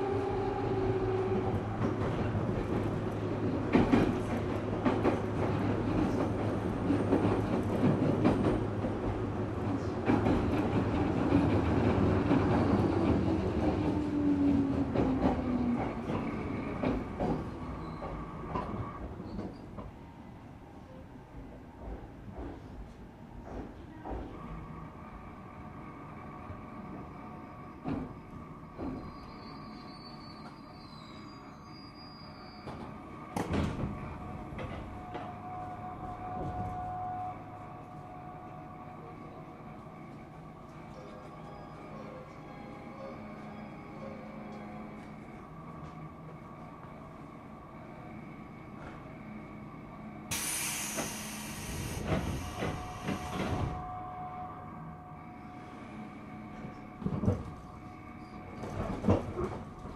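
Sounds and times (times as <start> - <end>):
train wheels rumbling on rail: 0.0 - 20.1, 21.2 - 59.9
rail-joint clacks: 1.7 - 14.0, 21.7 - 24.6, 50.3 - 53.8, 58.5 - 59.9.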